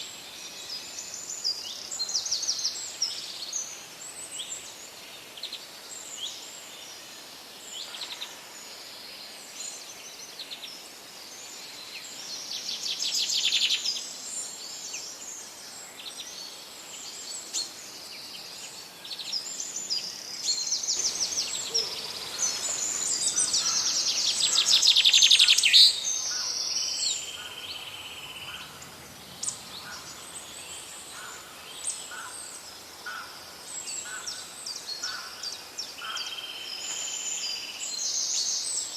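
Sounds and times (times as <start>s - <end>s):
faint background hiss: 0.0s - 38.9s
songbirds chirping and trilling: 0.0s - 38.9s.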